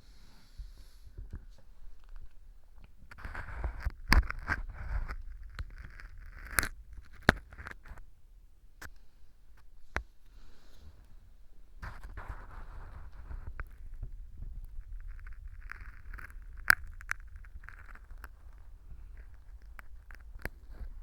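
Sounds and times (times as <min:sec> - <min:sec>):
earpick scraping and crackling: 0:03.0 - 0:08.1, 0:11.8 - 0:21.0.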